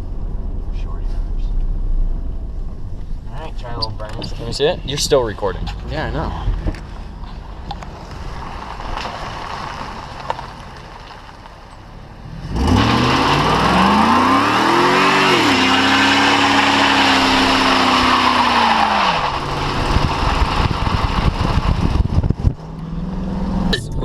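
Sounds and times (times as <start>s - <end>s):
car engine revving: 12.0s - 24.0s.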